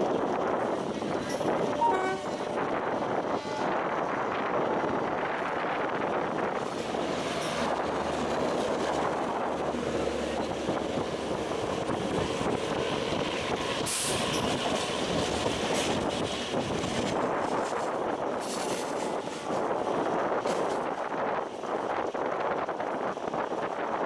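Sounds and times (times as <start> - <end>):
train wheels rolling on rails: 0.0 - 24.0.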